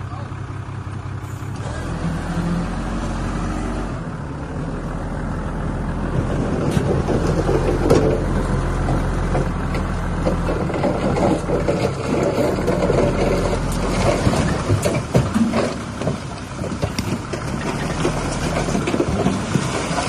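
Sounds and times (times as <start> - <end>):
heavy machine engine under load: 0.0 - 20.0
knocks and clanks: 6.2 - 20.0.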